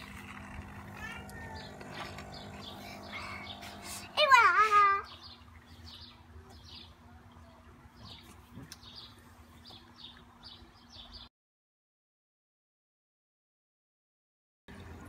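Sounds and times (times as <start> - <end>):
low steady hum: 0.0 - 10.9
small birds chirping: 0.0 - 11.3.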